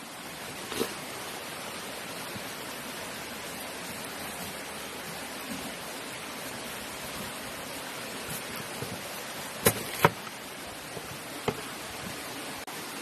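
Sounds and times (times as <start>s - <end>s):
knife chopping fruit: 9.6s - 10.3s.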